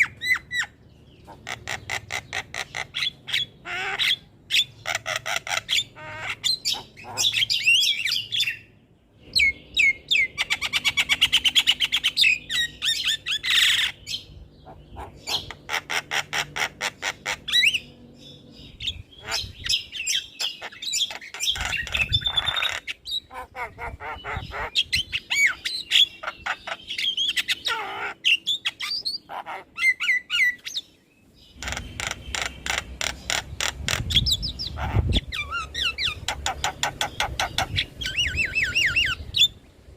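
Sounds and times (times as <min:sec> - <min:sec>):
myna singing whistles and squawks: 0:33.9 - 0:39.6.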